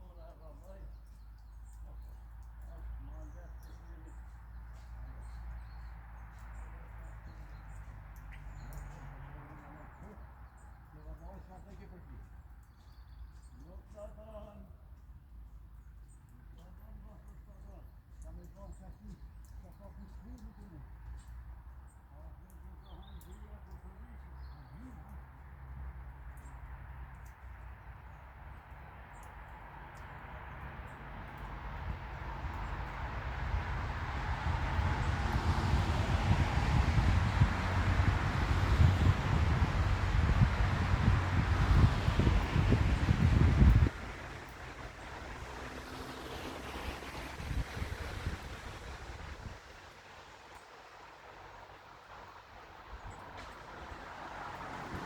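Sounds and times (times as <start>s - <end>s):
songbirds chirping: 0.0s - 55.0s
low outdoor rumble: 28.1s - 55.0s.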